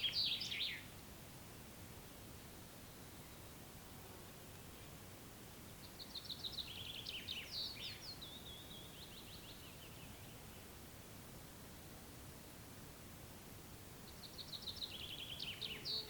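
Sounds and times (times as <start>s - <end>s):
songbird singing trill: 0.0s - 0.9s, 5.8s - 10.8s, 14.0s - 16.0s
open air background noise: 0.0s - 16.0s.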